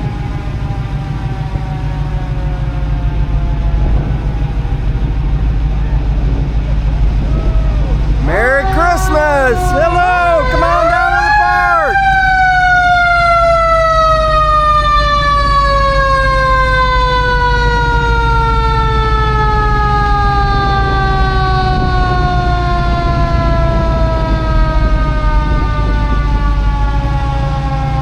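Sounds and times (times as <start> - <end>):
low engine rumble: 0.0 - 13.1
siren winding down: 7.2 - 28.0.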